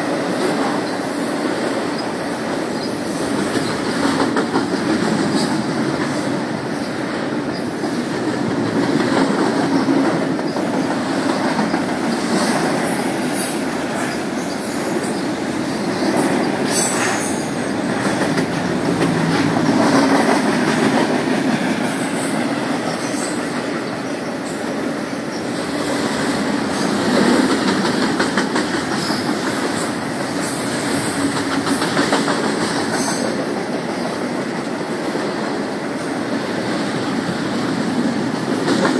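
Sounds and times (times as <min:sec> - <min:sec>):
freight train cars rumbling: 0:00.0 - 0:38.9
wheels clicking over rail joints: 0:00.0 - 0:38.9.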